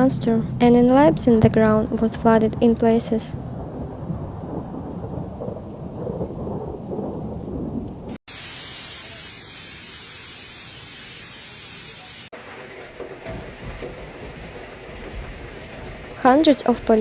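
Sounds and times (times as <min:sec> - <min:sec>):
thunder rumble: 0:00.0 - 0:08.2, 0:12.8 - 0:17.0
heavy rain hiss: 0:08.3 - 0:17.0.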